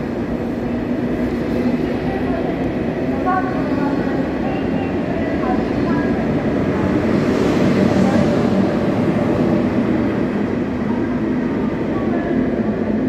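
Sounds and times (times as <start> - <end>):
train cars rumbling past: 0.0 - 13.0.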